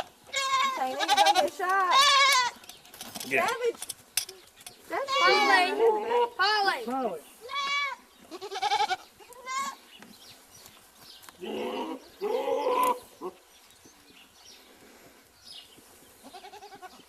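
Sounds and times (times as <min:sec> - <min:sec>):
goats bleating: 0:00.0 - 0:02.6, 0:04.9 - 0:06.6, 0:07.4 - 0:09.8, 0:11.4 - 0:13.4, 0:16.2 - 0:17.0.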